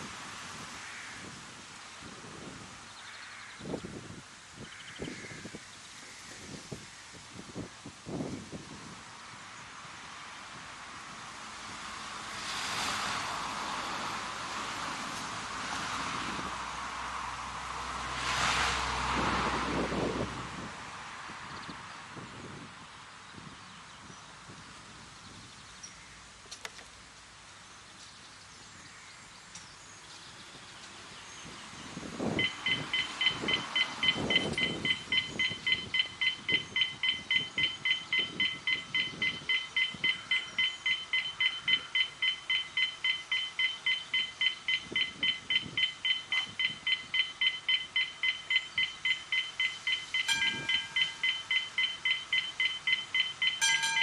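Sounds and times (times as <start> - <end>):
quiet outdoor background: 0.0 - 54.0
electronic beeper beeping: 32.4 - 54.0.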